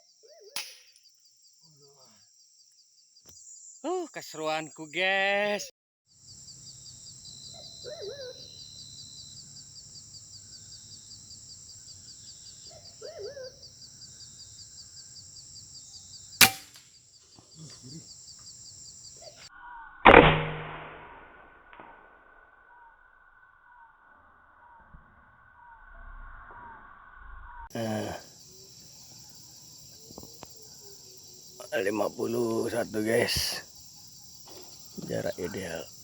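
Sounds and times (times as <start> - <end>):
bird calls: 0.0 - 2.2, 6.3 - 16.6
sharp click: 0.6 - 1.0, 16.4 - 16.8
air rifle shot crack: 16.4 - 16.8, 20.1 - 22.4.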